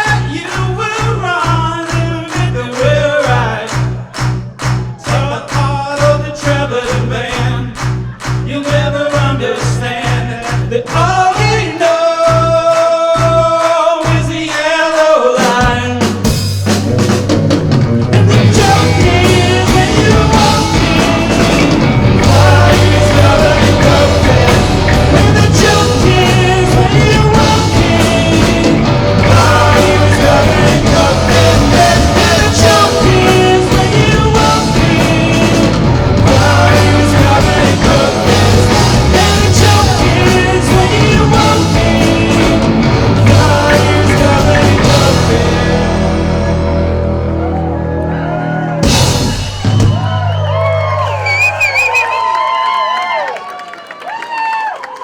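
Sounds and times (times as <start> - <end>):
live rock band playing: 15.4 - 52.0
person singing: 18.2 - 46.7.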